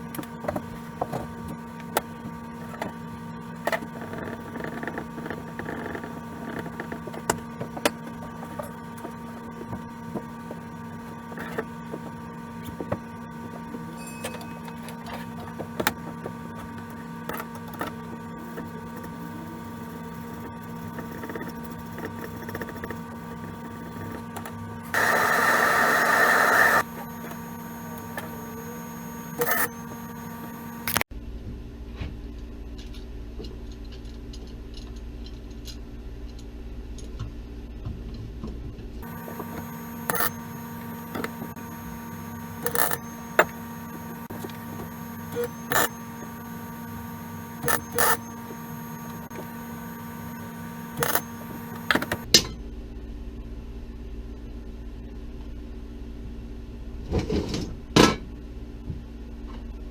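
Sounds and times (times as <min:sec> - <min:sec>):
welder electrical hum: 0:00.0 - 0:31.2, 0:38.4 - 0:59.9
sharp clicks: 0:24.9 - 0:31.0.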